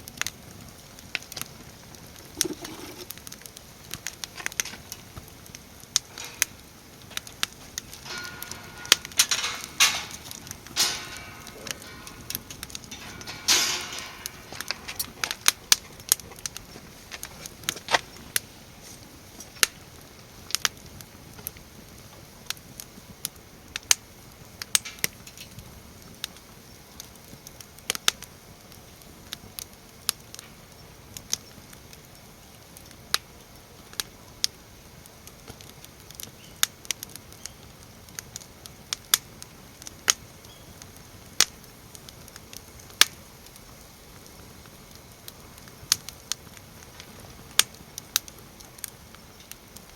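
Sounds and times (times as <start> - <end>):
faint hiss: 0.0 - 49.9
wood fire crackling and popping: 0.0 - 49.9.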